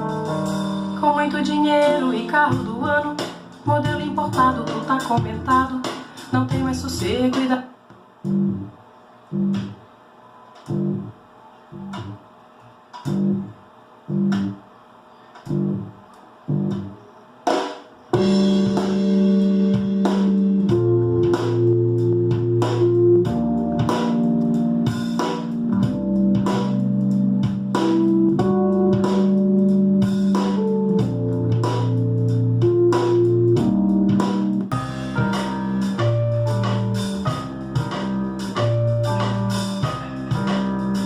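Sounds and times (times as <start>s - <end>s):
band music over loudspeakers: 0.0s - 7.5s, 18.2s - 41.0s.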